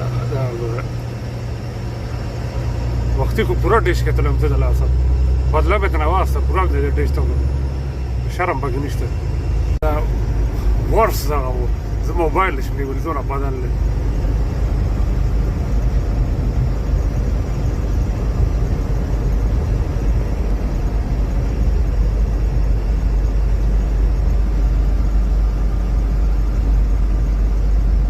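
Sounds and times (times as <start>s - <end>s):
vehicle engine and tyre rumble: 0.0s - 28.0s.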